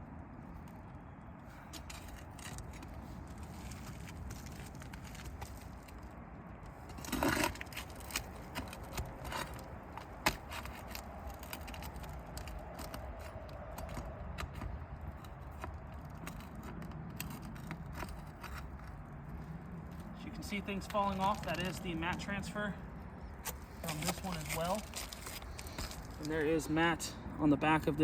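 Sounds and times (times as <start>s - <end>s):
nails scraping out of shingles: 6.8s - 19.0s, 23.4s - 26.4s.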